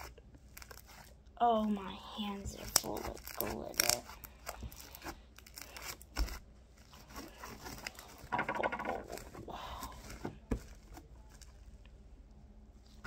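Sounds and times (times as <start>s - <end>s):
hands squishing sticky slime: 0.0s - 8.3s.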